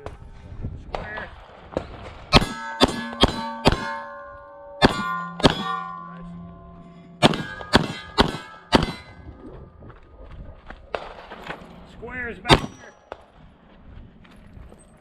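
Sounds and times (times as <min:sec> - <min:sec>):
pistol shots: 0:01.7 - 0:04.1, 0:04.8 - 0:05.9, 0:07.2 - 0:09.1, 0:12.5 - 0:12.9
steel plate ringing clang: 0:02.3 - 0:09.4.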